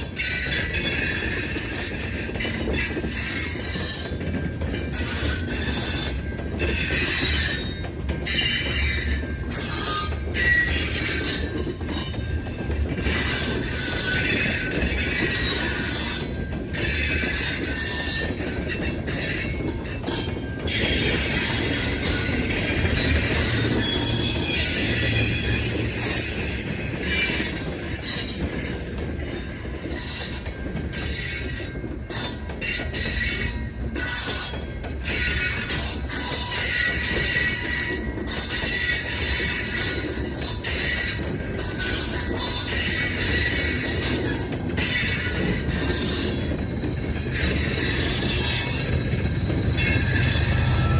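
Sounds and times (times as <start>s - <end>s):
train rumbling on rails: 0.0s - 50.9s
wheel squeal: 33.0s - 50.9s.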